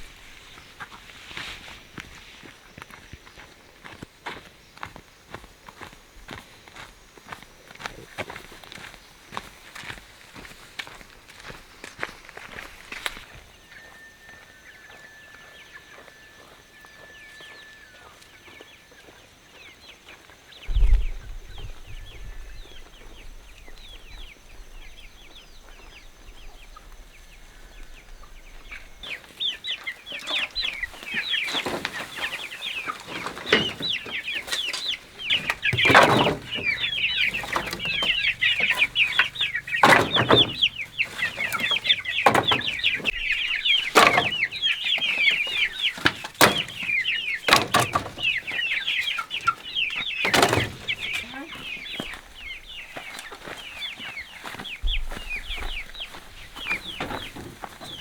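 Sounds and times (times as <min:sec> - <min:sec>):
chickens clucking: 0:25.2 - 0:58.0
loud knocks: 0:35.4 - 0:43.2, 0:43.8 - 0:44.6, 0:46.0 - 0:46.9.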